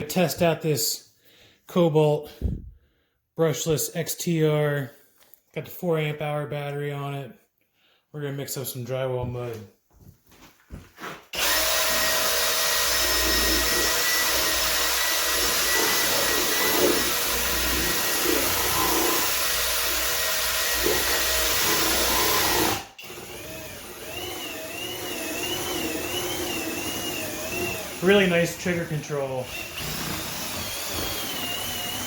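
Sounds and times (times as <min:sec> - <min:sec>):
drill mixing drywall mud: 0:11.0 - 0:32.0.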